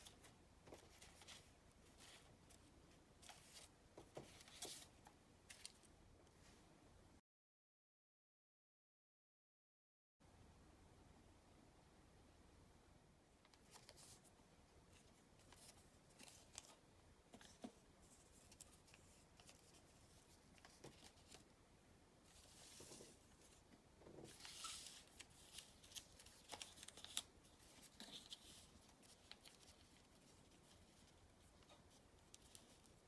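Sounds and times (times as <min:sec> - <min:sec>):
paper rustling and creasing: 0:00.0 - 0:05.9, 0:15.0 - 0:21.5, 0:22.3 - 0:23.6, 0:24.2 - 0:33.0.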